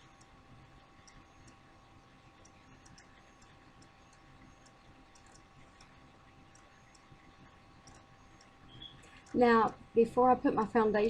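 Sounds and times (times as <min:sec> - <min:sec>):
faint steady hum: 0:00.0 - 0:11.0
faint small clicks: 0:01.0 - 0:01.6, 0:02.4 - 0:07.2, 0:07.8 - 0:09.4.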